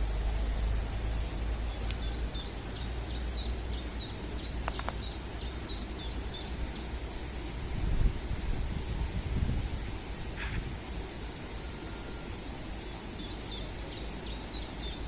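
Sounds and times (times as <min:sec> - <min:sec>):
sharp clicks: 0:04.6 - 0:05.1.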